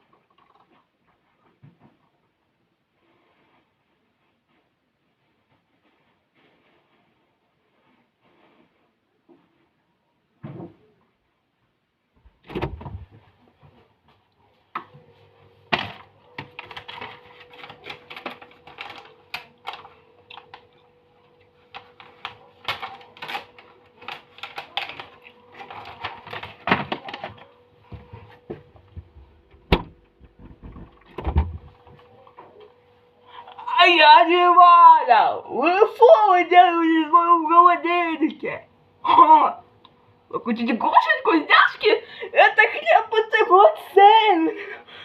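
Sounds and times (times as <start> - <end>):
things moved inside refrigerator: 12.2 - 32.9
refrigerator hum: 12.2 - 45.0.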